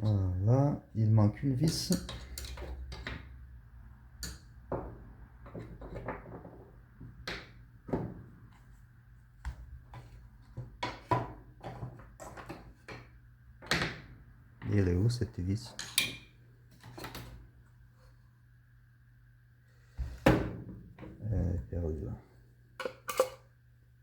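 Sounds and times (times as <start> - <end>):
low steady hum: 11.8 - 24.0.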